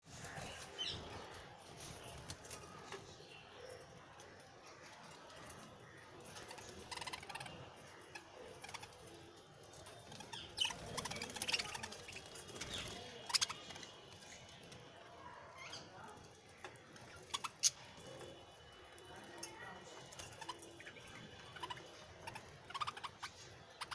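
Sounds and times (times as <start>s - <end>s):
budgerigars chirping: 20.4s - 23.9s.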